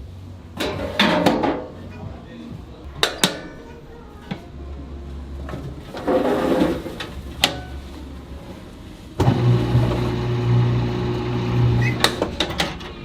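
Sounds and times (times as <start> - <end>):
low hum: 2.0 - 13.0
machine humming: 2.8 - 13.0.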